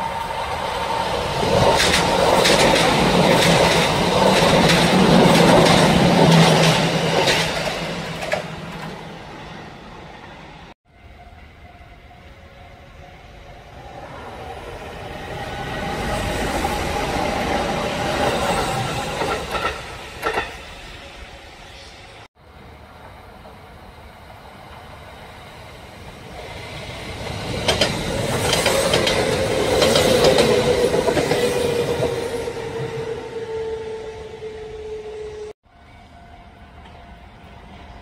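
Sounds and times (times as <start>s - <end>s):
train wheels clacking over rail joints: 1.6s - 8.9s, 27.5s - 31.4s.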